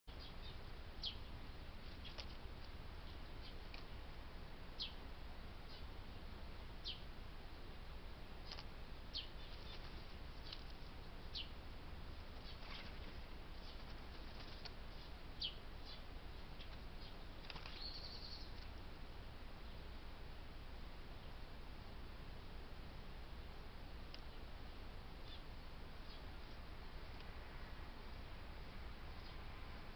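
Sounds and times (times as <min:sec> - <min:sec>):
steady low hum: 0:00.1 - 0:29.9
short sharp bird calls: 0:17.0 - 0:18.6.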